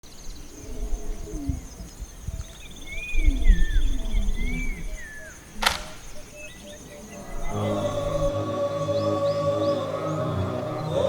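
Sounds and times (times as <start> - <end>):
low rising and falling calls: 6.6 - 11.0.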